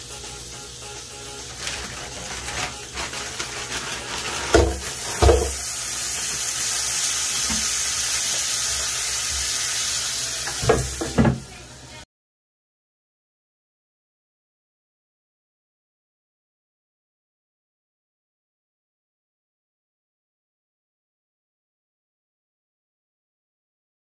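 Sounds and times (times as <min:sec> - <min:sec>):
food sizzling in a pan: 0:00.0 - 0:12.0
utensil knocking on pan: 0:04.5 - 0:05.6, 0:10.5 - 0:11.4.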